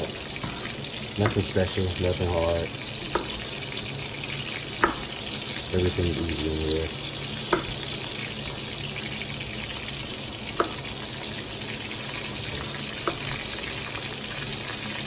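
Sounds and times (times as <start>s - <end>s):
food sizzling in a pan: 0.0s - 15.0s
knife striking cutting board: 0.4s - 1.5s, 3.1s - 3.4s, 4.8s - 5.1s, 7.5s - 7.8s, 10.6s - 10.8s.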